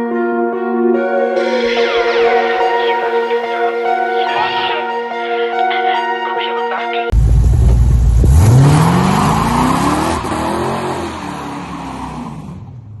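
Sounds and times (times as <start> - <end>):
car engine revving hard: 8.2 - 13.0.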